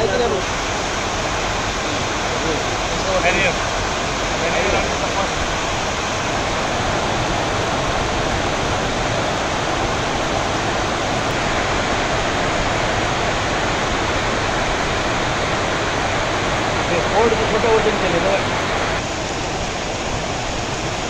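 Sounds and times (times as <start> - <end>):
heavy rain pouring: 0.0 - 21.0
water streaming off metal roof: 0.0 - 21.0.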